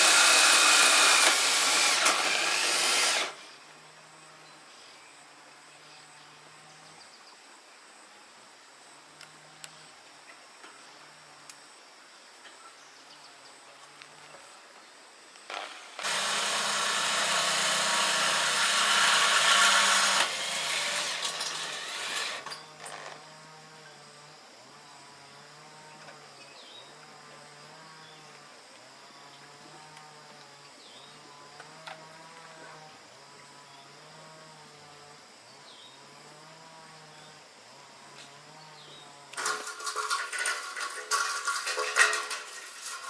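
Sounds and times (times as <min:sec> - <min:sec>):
power tool running: 0:00.0 - 0:03.5, 0:15.5 - 0:23.2, 0:39.4 - 0:43.0.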